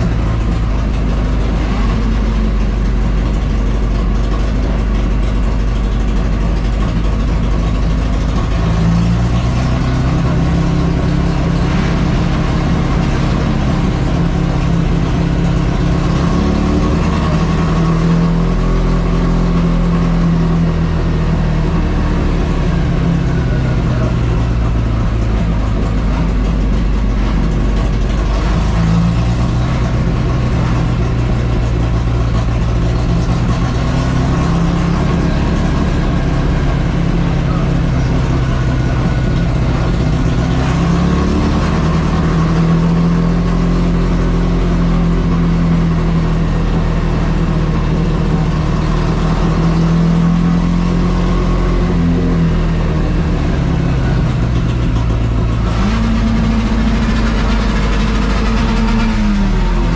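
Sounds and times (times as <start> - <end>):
race car engine running: 0.0 - 59.9.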